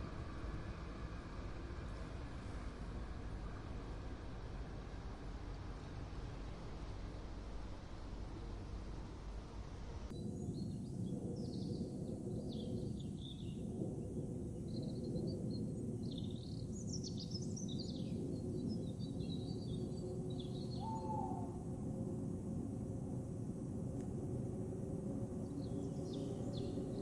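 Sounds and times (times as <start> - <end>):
small birds chirping: 25.4 - 27.0.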